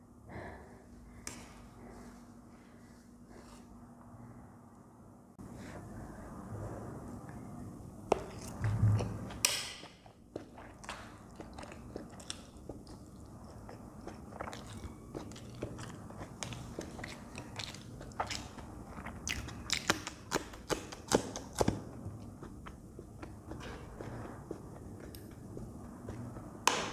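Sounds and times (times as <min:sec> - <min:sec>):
chili being bitten and chewed: 0:08.1 - 0:26.8
chewing noodles with wet clicks: 0:09.3 - 0:26.3.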